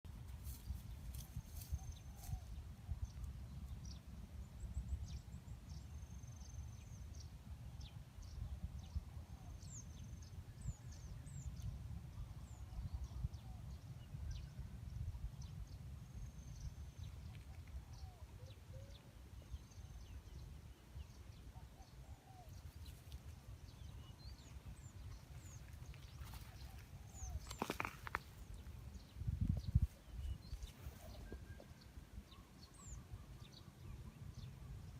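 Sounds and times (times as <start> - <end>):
birds chirping: 15.4 - 34.9
wind on microphone: 26.2 - 32.0.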